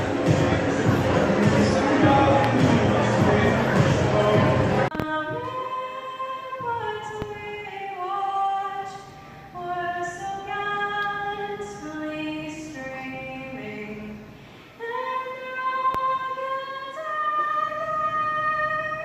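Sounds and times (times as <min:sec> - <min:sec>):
woman singing slow melody: 0:04.4 - 0:19.0.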